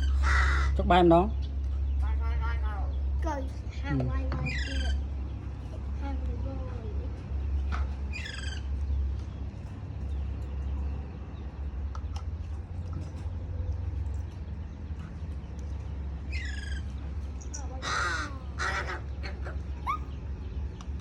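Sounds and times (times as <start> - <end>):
crow cawing: 0.0 - 0.9, 17.8 - 20.0
steady low rumble: 0.0 - 21.0.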